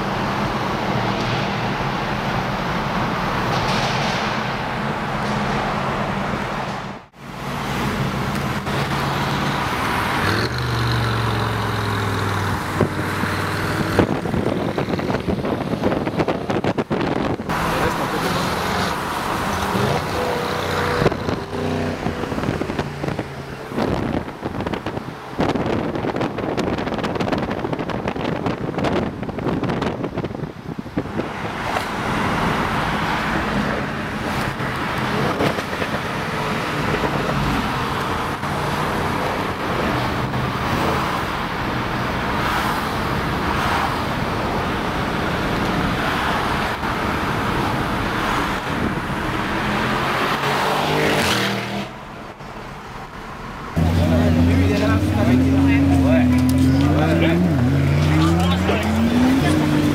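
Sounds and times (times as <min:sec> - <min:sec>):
wind buffeting microphone: 0:12.2 - 0:17.5, 0:20.9 - 0:40.8.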